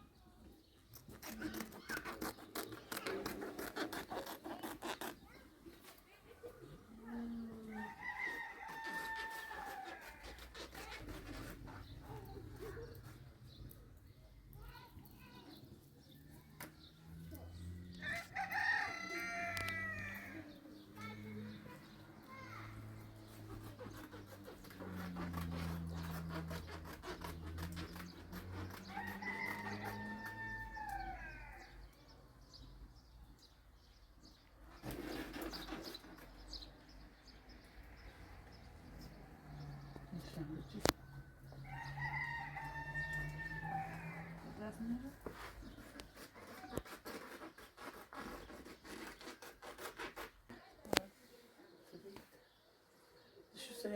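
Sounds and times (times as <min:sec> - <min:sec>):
rooster crowing: 0:07.7 - 0:10.2, 0:18.0 - 0:20.4, 0:28.9 - 0:31.8, 0:41.6 - 0:44.6.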